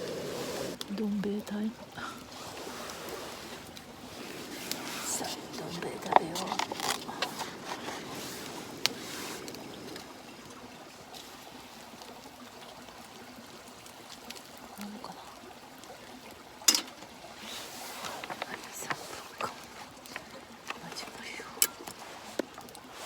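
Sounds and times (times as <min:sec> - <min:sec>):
hot water pouring into a cup: 0:01.9 - 0:23.0.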